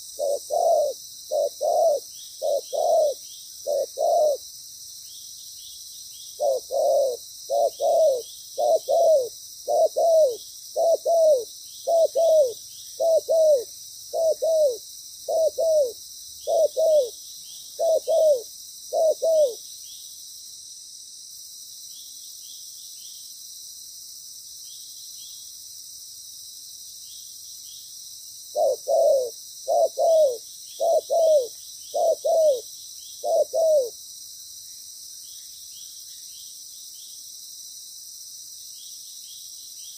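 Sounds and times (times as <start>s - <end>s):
dove cooing: 0.0s - 4.4s, 6.4s - 19.6s, 28.5s - 34.0s.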